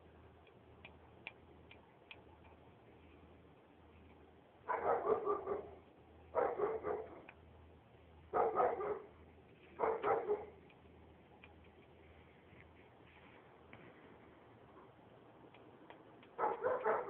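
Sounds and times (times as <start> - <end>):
dog barking: 4.6 - 7.3, 8.3 - 9.1, 9.8 - 10.6, 16.4 - 17.0.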